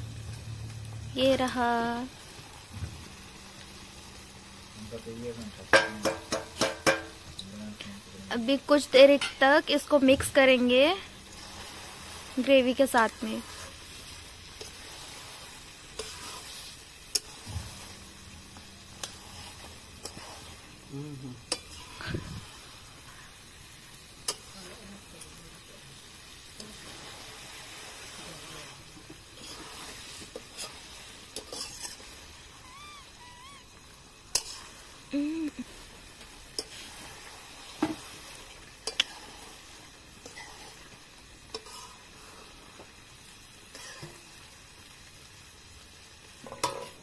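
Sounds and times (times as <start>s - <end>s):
chicken sizzling in gravy: 0.0s - 47.0s
metal spatula scraping a pan: 13.4s - 18.0s, 18.8s - 20.7s, 21.4s - 22.1s, 28.6s - 32.2s, 34.3s - 34.8s, 36.5s - 38.2s, 40.2s - 40.9s, 41.5s - 42.5s, 43.7s - 44.3s, 46.4s - 47.0s.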